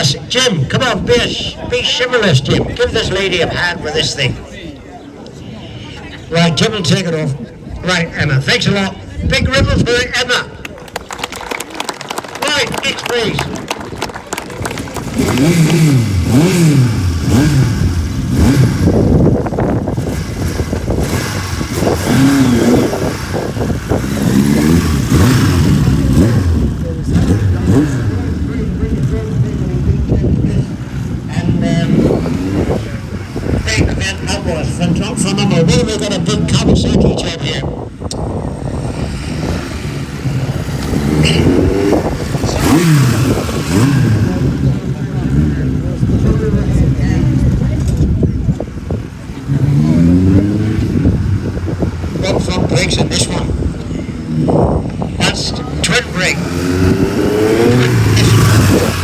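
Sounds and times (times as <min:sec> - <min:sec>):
motorcycle engine revving: 0:12.5 - 0:59.0.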